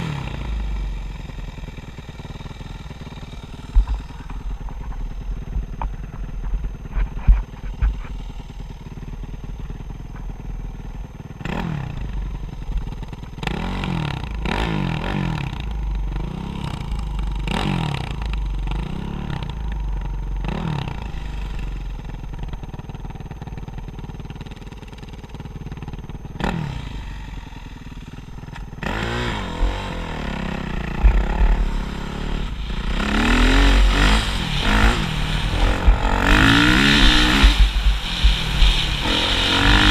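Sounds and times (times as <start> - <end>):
dirt bike engines revving: 0.0 - 9.1, 26.3 - 39.9.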